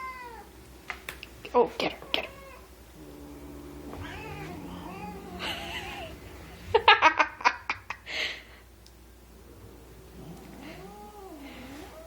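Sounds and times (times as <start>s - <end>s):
cat growling yowl: 2.2s - 6.8s, 10.0s - 12.0s
person laughing: 5.3s - 8.4s.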